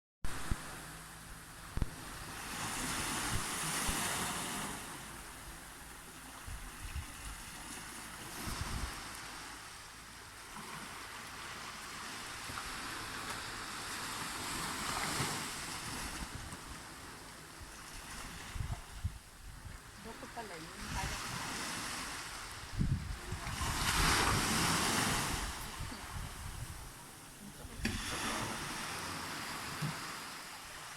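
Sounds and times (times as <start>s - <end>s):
ocean waves breaking on beach: 0.3s - 30.9s
wind buffeting microphone: 17.6s - 21.4s, 22.2s - 30.1s.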